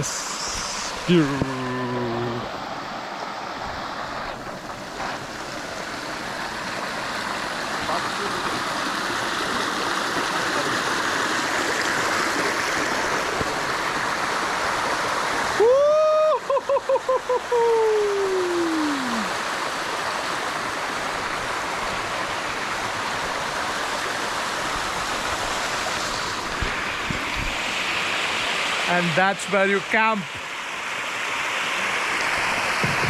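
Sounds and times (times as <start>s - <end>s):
steady rushing noise: 0.0s - 15.4s.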